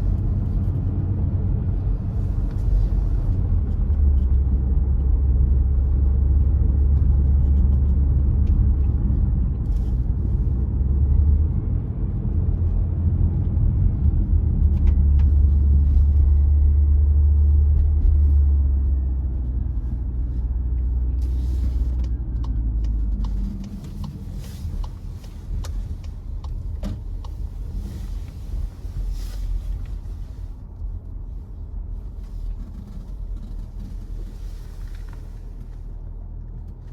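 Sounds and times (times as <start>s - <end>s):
car engine and tyre rumble: 0.0s - 36.9s
road noise: 0.0s - 36.9s.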